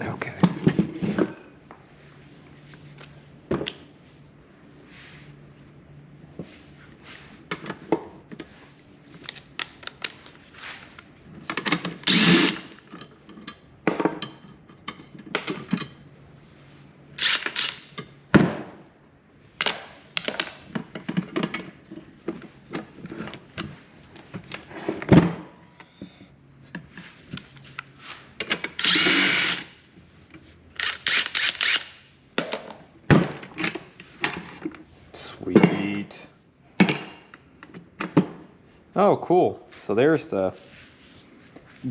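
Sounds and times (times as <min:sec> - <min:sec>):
power drill whirring: 0:12.1 - 0:12.8, 0:17.2 - 0:17.9, 0:28.8 - 0:29.8, 0:30.8 - 0:32.0.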